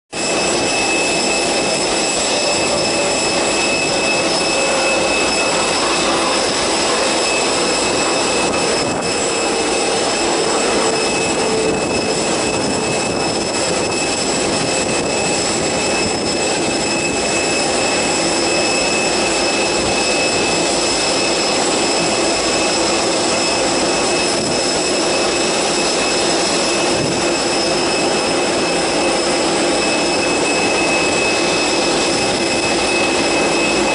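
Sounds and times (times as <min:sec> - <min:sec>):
jet engines running: 0:00.1 - 0:33.9
high whining tones: 0:00.2 - 0:33.9.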